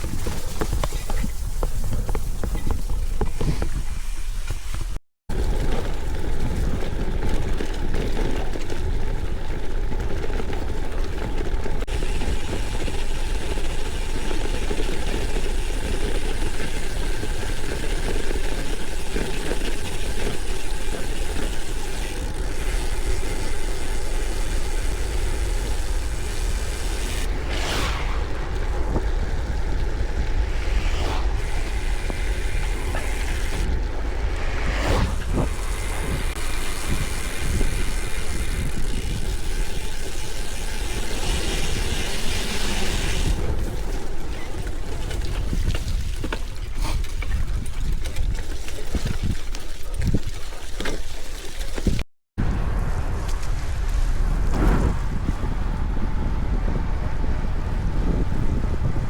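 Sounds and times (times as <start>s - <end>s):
bike tyres on gravel: 0.0s - 59.0s
wind on microphone: 23.2s - 50.3s, 51.8s - 59.0s
brief swishes: 27.3s - 29.0s, 30.4s - 36.4s.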